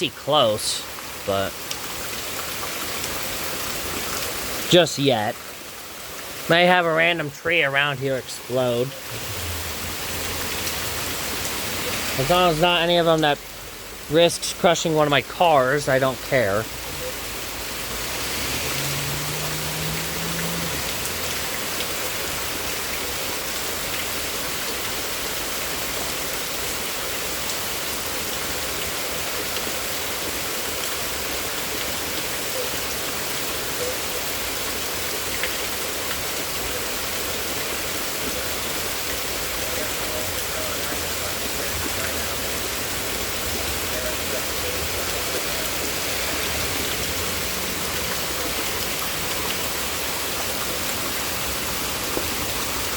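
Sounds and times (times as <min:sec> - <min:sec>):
heavy rain: 0:00.0 - 0:52.9.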